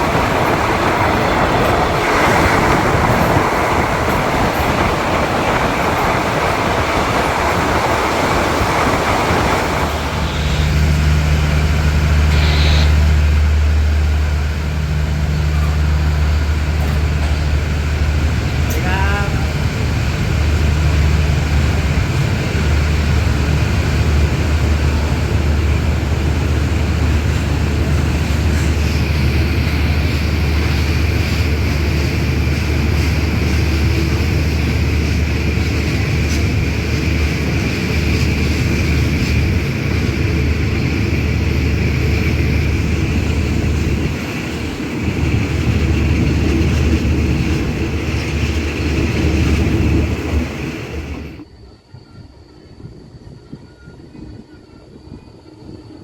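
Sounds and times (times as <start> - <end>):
train running low rumble: 0.0 - 56.0.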